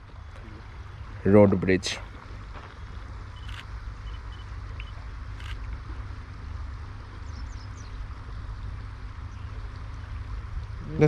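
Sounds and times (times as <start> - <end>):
faint high chirps: 3.3 - 5.0.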